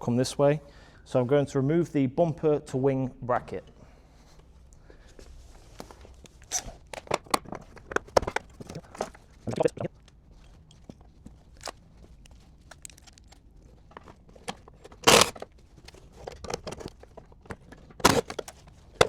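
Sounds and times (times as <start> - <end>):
tools clicking and rattling: 10.0 - 19.0.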